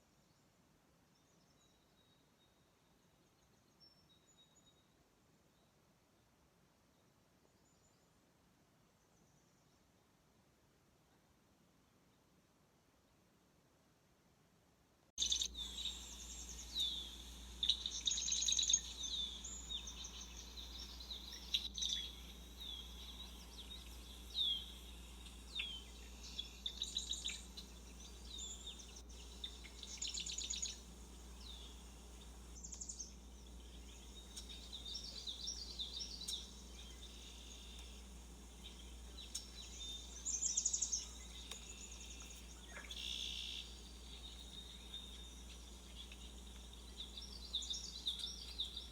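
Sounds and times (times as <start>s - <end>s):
small birds chirping: 15.2s - 48.9s.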